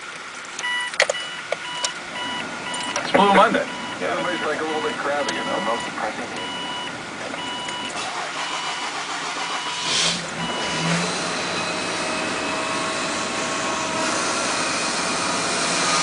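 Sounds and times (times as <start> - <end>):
car engine cranking and idling: 0.0 - 16.0
dashboard warning chime beeping: 0.6 - 12.9.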